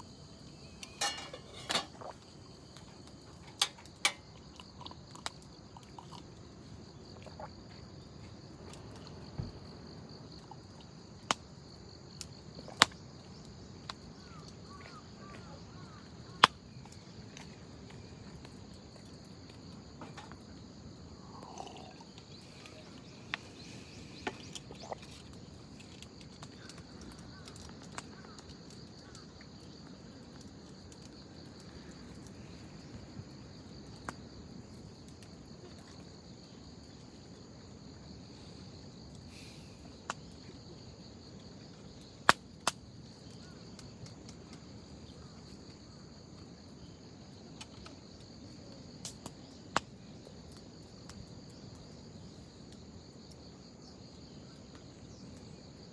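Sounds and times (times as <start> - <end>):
wood fire crackling and popping: 0.0 - 6.4, 21.5 - 32.3, 41.9 - 44.7
high insect chirr: 0.0 - 55.9.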